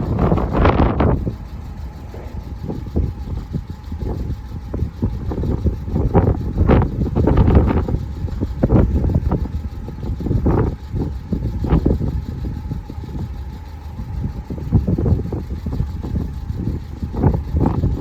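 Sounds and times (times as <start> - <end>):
passing vehicles rumbling: 0.0 - 9.4.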